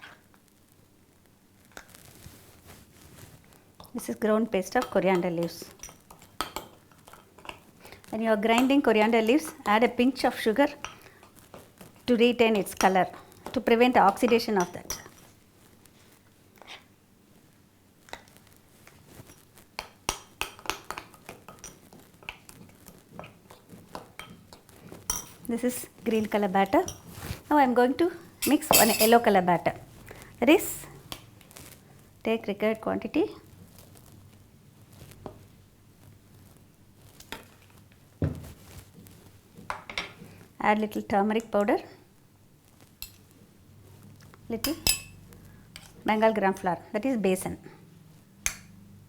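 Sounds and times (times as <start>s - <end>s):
spoon clinking against bowl: 28.4s - 29.3s
dull thump: 38.2s - 38.6s.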